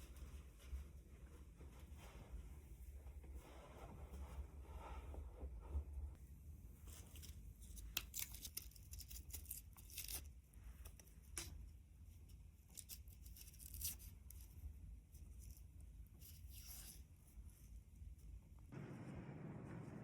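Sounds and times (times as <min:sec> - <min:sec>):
low steady rumble: 0:18.0 - 0:20.0.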